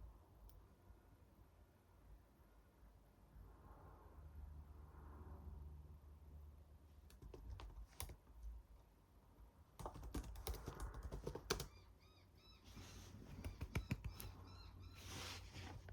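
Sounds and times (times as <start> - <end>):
computer keyboard typing: 7.1 - 8.2, 9.8 - 11.7, 13.3 - 14.4.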